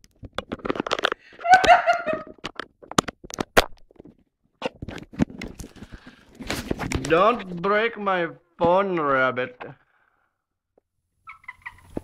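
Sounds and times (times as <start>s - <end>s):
person laughing: 1.4s - 2.3s.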